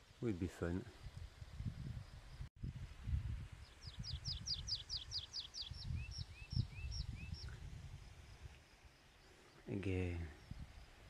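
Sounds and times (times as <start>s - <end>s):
wind buffeting microphone: 0.8s - 8.6s, 10.3s - 11.0s
songbird singing: 3.5s - 11.0s.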